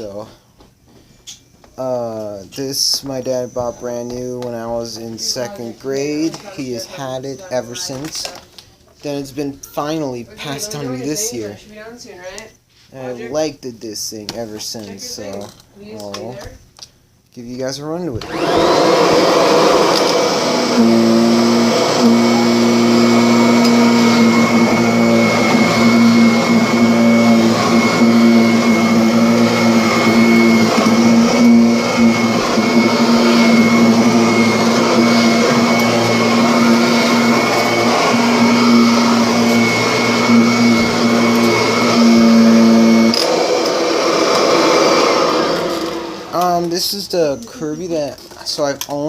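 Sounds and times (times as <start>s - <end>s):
vacuum cleaner motor whining: 18.1s - 48.0s.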